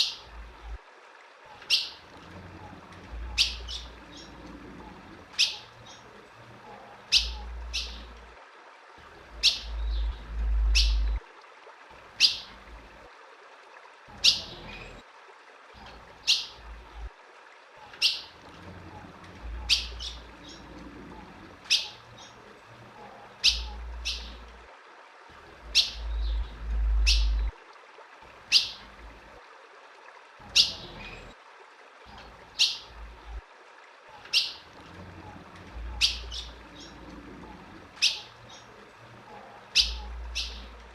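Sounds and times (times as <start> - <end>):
bird chip calls: 1.6 - 2.0, 3.3 - 4.4, 5.4 - 6.0, 7.1 - 8.1, 9.4 - 11.2, 17.9 - 18.3, 21.7 - 22.4, 23.1 - 24.4, 25.7 - 27.5, 28.5 - 28.8, 30.5 - 31.3, 32.1 - 32.9, 34.2 - 34.6, 35.9 - 37.0, 38.0 - 40.8
low rumble: 9.7 - 11.2, 26.0 - 27.5.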